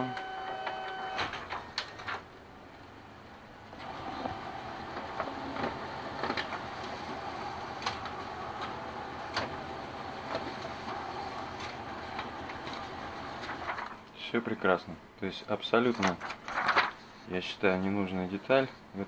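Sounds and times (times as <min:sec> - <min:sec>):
document feeder whirring: 0:00.0 - 0:02.3, 0:03.6 - 0:14.0
sharp clicks of pages feeding: 0:10.3 - 0:14.0, 0:15.9 - 0:17.2.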